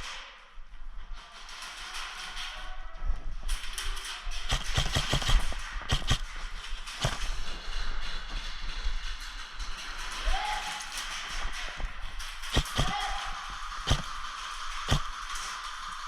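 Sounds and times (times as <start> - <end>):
airsoft guns firing: 4.5 - 7.5, 12.4 - 15.4.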